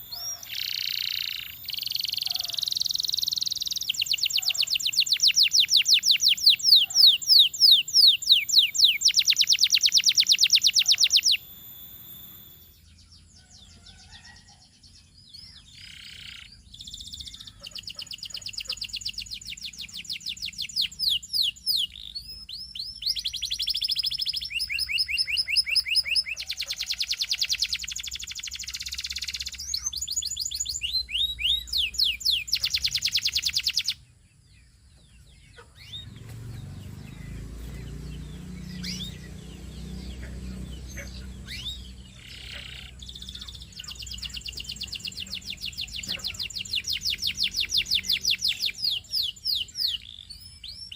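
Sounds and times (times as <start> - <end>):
canary singing trills: 0.0 - 50.9.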